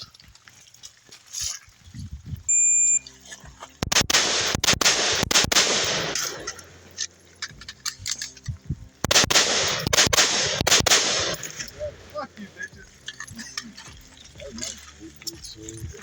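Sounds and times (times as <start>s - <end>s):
shot timer beep: 2.5s - 3.1s
rifle firing rapid shots: 3.8s - 6.8s, 9.0s - 11.8s.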